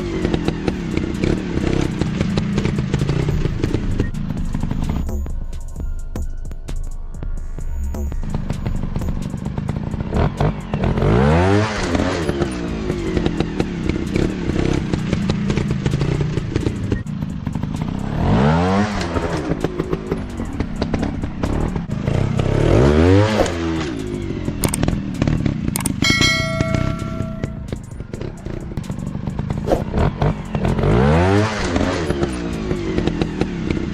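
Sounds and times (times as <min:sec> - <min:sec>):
dirt bike engines revving: 0:08.3 - 0:33.9.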